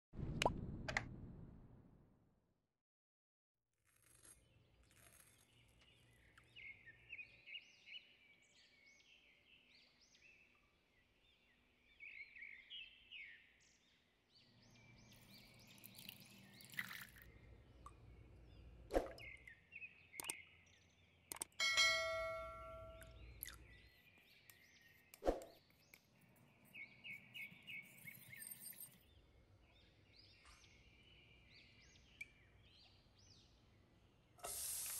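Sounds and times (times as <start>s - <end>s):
small birds twittering: 5.2s - 34.4s
sharp clicks: 21.3s - 21.6s
loud ringing clink: 21.6s - 23.0s.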